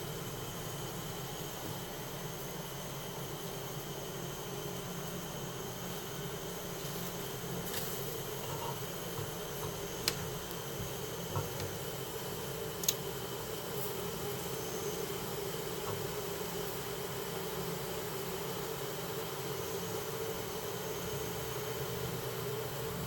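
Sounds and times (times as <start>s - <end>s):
honeybees buzzing: 0.0s - 23.0s
sharp clicks: 12.8s - 13.0s.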